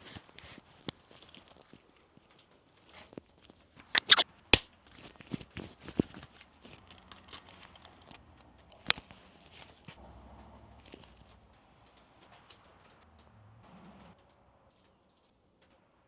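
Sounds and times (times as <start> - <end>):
sharp click: 4.0 - 4.7.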